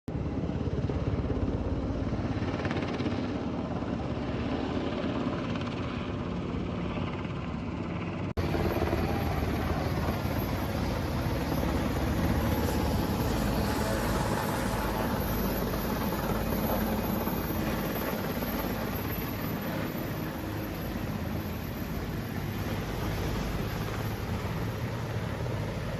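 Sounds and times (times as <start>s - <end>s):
helicopter rotor chop: 0.1s - 25.9s.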